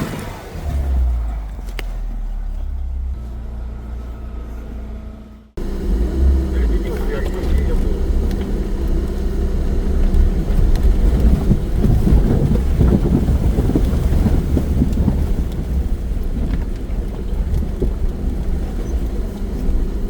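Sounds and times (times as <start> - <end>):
crackling rumble: 0.0 - 20.0
vehicle engine droning: 0.0 - 20.0.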